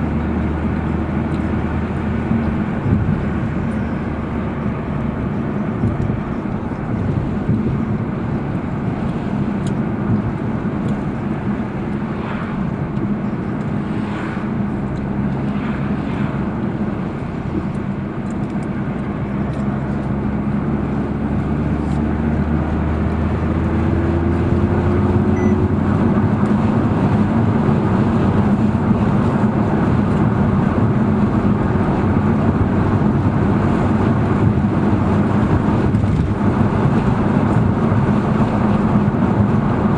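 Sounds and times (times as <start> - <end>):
car engine running: 0.0 - 39.9
road noise: 0.0 - 39.9
low hum: 23.3 - 27.3.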